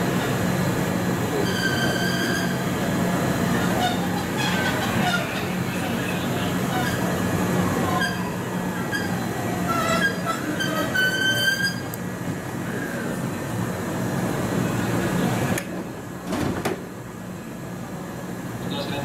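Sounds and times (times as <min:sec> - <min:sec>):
high squealing train brakes: 0:01.3 - 0:02.8, 0:07.8 - 0:12.0.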